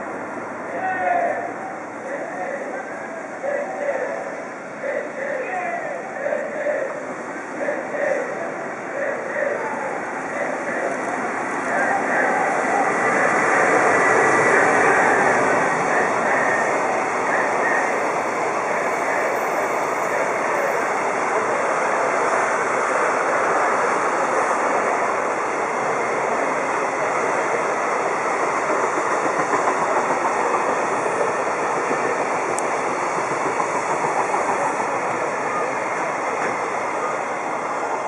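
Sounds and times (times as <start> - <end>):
train wheels rumbling on track: 0.0 - 38.0.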